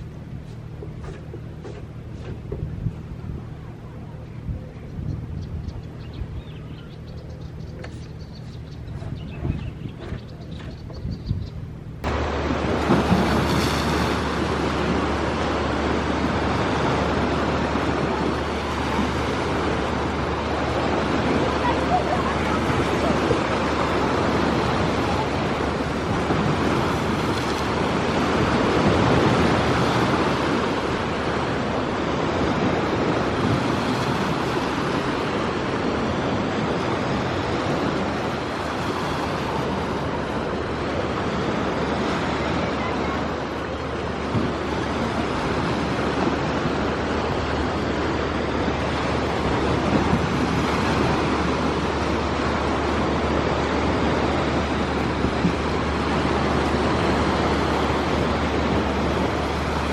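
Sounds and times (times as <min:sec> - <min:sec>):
steady outdoor rushing noise: 0:00.0 - 0:59.9.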